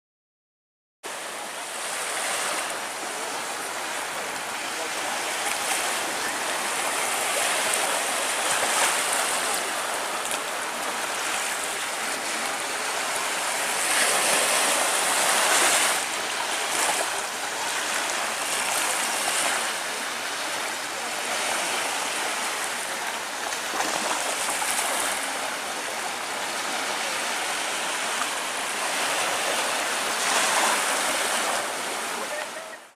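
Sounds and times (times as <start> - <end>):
water rushing along boat hull: 1.1 - 32.9.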